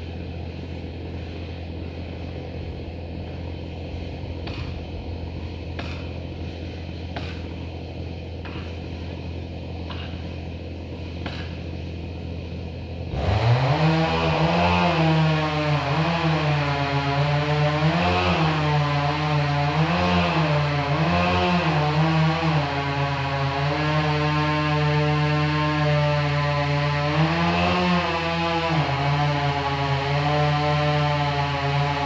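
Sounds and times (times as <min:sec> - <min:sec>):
low engine hum: 0:00.0 - 0:25.4
chainsaw cutting: 0:00.0 - 0:32.0.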